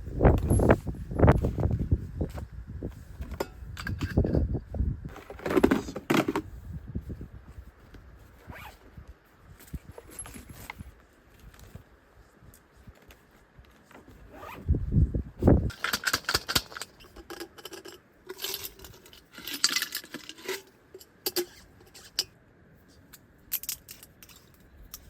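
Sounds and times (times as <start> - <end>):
zipper rasping: 8.4 - 8.8, 14.2 - 14.8.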